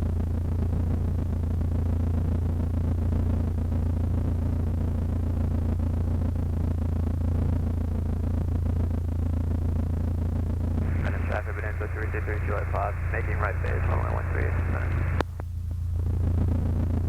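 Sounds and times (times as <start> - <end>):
airplane engine idling: 10.8 - 15.4.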